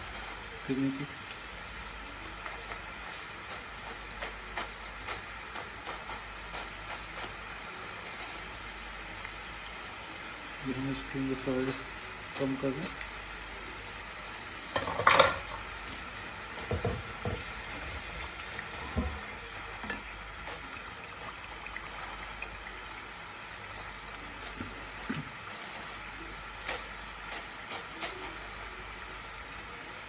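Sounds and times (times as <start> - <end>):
potatoes sizzling in oil: 0.0 - 30.0
utensil knocking and scraping: 16.7 - 18.0.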